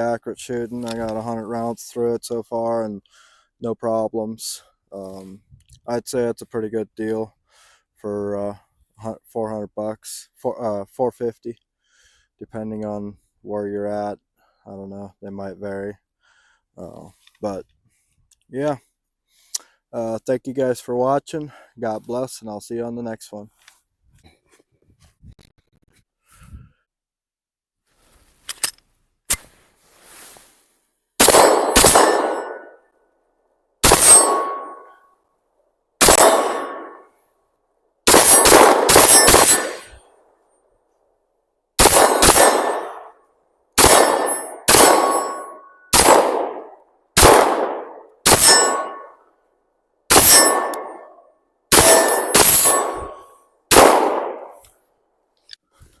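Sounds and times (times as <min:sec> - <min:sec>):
pistol shots ringing: 0:31.2 - 0:32.8, 0:33.8 - 0:34.9, 0:36.0 - 0:37.1, 0:38.1 - 0:40.0, 0:41.8 - 0:43.1, 0:43.8 - 0:49.2, 0:50.1 - 0:54.6.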